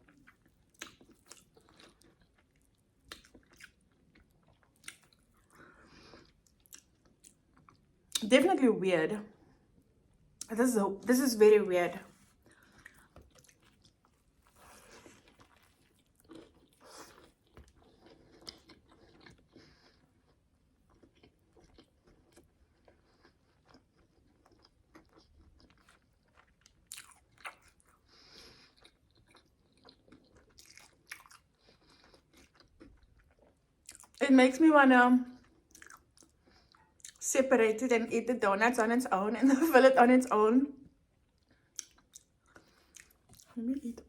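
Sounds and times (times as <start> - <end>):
close-miked chewing crunches: 0.0 - 8.2, 12.2 - 34.2, 35.3 - 37.2, 41.3 - 43.9
wet mouth sounds: 26.9 - 27.9.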